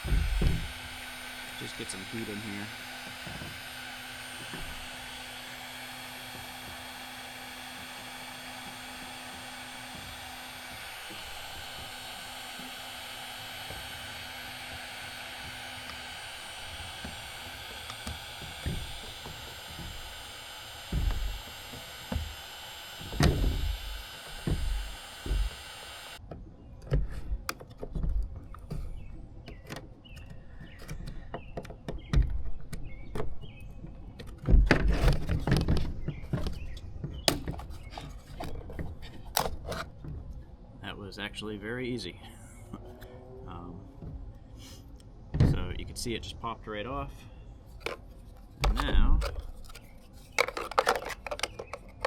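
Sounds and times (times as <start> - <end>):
heat gun blowing: 0.0 - 26.2
screwdriver knocking on plastic: 0.0 - 26.2, 48.6 - 49.6, 50.4 - 52.0
sharp clicks and thumps: 0.0 - 33.4, 47.8 - 52.0.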